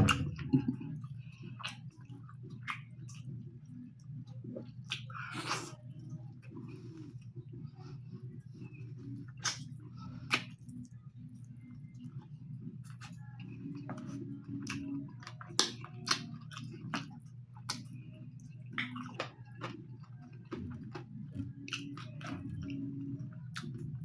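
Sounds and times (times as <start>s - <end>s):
person chewing food: 0.0s - 3.4s, 4.0s - 5.8s, 6.4s - 11.0s, 12.8s - 24.0s
steady low hum: 0.0s - 24.0s
wet mouth clicks and smacks: 4.8s - 5.7s, 9.3s - 11.0s, 14.6s - 17.9s.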